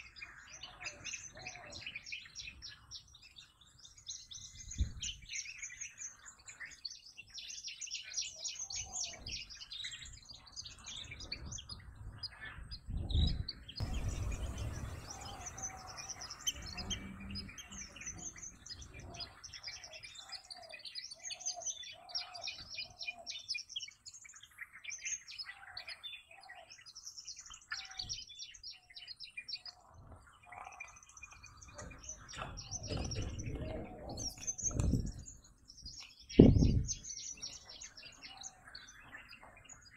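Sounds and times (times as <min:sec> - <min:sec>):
birds chirping in high trills: 0:00.0 - 0:39.9
lower bird notes: 0:00.0 - 0:39.9.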